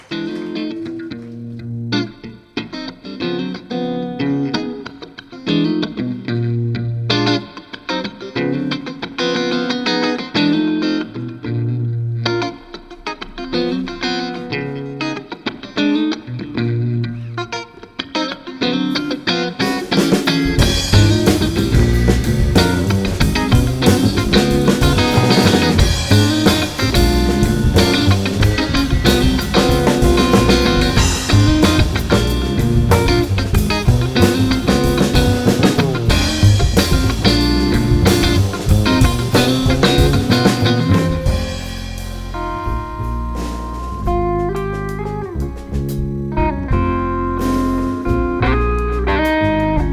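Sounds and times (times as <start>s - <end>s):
bass guitar: 0.0s - 7.6s, 8.3s - 17.8s, 18.8s - 49.9s
electric guitar: 0.0s - 49.9s
drum kit: 18.9s - 49.9s.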